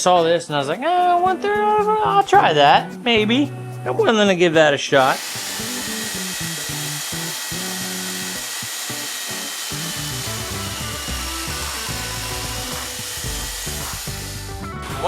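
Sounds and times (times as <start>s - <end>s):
background music: 0.0s - 15.0s
saw cutting through wood: 5.0s - 15.0s.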